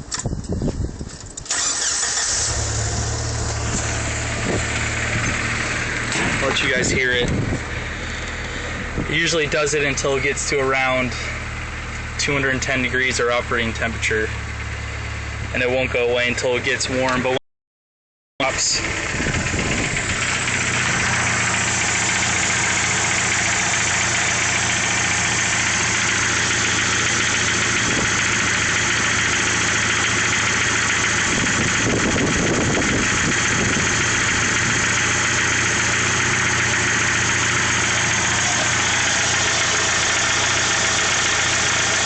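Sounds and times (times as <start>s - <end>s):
car engine idling: 0.5s - 17.4s, 18.4s - 42.0s
engine knocking: 18.6s - 42.0s.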